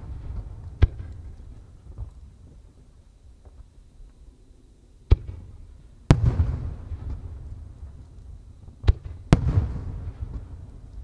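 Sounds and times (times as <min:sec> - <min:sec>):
firework cracks: 0:00.0 - 0:02.4, 0:05.1 - 0:11.0
firework booms echoing: 0:05.1 - 0:05.5, 0:06.1 - 0:07.4, 0:08.8 - 0:10.6.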